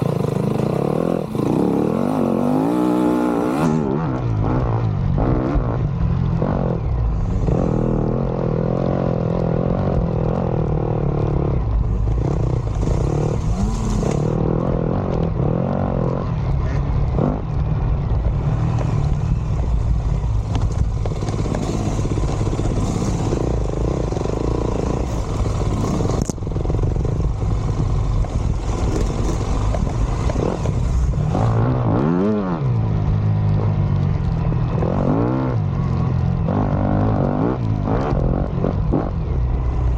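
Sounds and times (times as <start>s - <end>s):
dirt bike engine revving: 0.0s - 5.8s, 6.4s - 17.4s, 18.4s - 32.7s.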